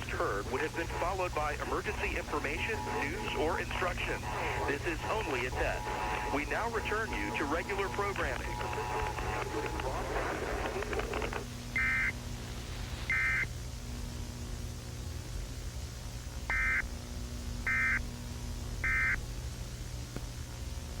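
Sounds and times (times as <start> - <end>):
buzzy electronic data bursts: 0.0 - 10.0, 16.5 - 18.2, 18.8 - 19.2
steady low hum: 0.0 - 21.0.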